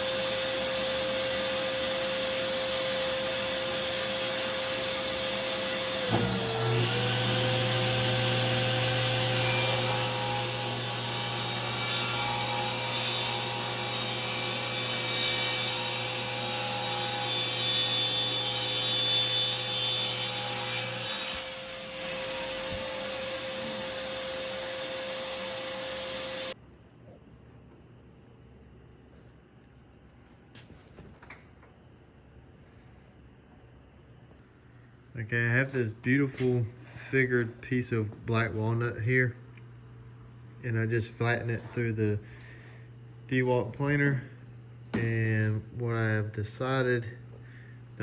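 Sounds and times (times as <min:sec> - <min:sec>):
thickness planer planing wood: 0:00.0 - 0:26.6.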